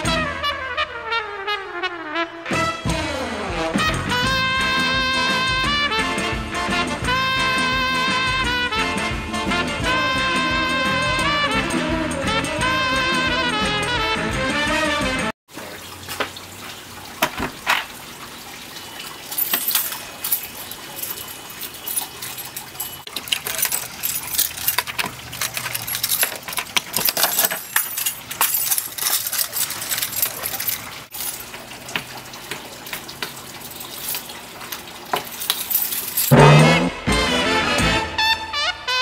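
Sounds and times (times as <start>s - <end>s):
keys jingling: 19.2s - 31.6s, 33.6s - 34.4s, 35.1s - 36.4s.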